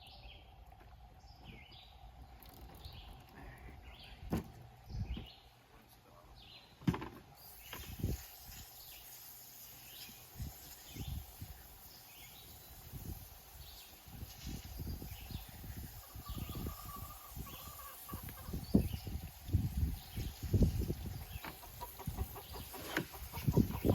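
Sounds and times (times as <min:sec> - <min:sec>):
chickens clucking faintly: 0:15.6 - 0:19.2, 0:20.4 - 0:23.9.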